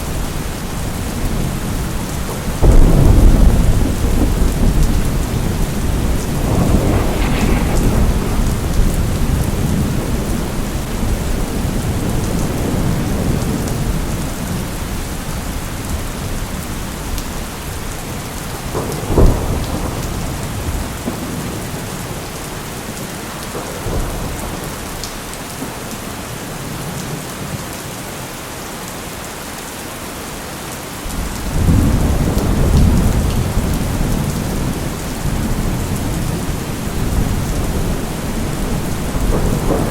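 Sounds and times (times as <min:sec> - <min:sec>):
steady rain: 0:00.0 - 0:39.9
rolling thunder rumble: 0:00.1 - 0:15.0, 0:15.9 - 0:25.0, 0:31.1 - 0:39.9
sharp thunderclap: 0:02.6 - 0:13.9, 0:18.6 - 0:21.8, 0:31.1 - 0:39.9.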